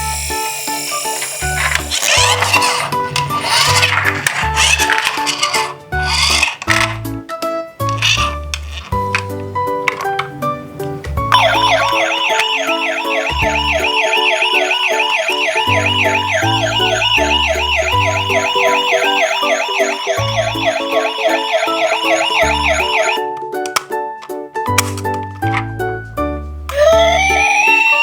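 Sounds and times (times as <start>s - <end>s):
emergency siren yelping: 11.4s - 23.2s, 26.7s - 28.0s.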